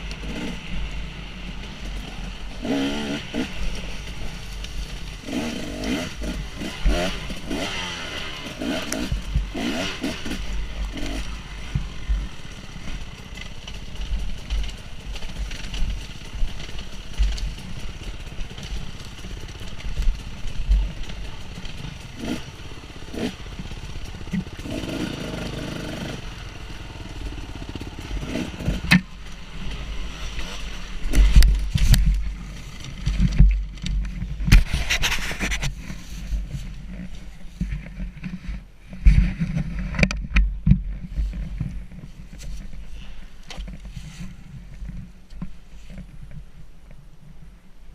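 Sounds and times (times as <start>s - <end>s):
dirt bike engine revving: 0.0s - 36.7s
rumble on microphone: 27.0s - 47.9s.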